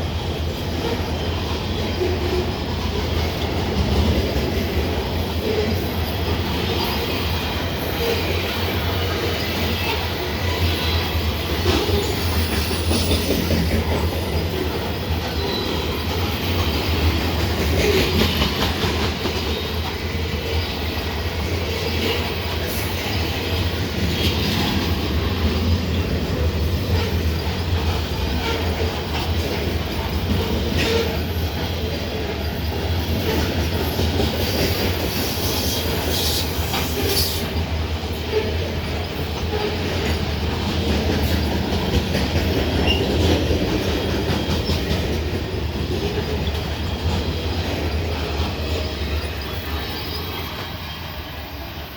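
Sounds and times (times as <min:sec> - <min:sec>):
train wheels rumbling on rails: 0:00.0 - 0:51.9
wheel squeals: 0:06.6 - 0:16.8, 0:32.4 - 0:37.6, 0:42.4 - 0:45.0, 0:47.9 - 0:51.4.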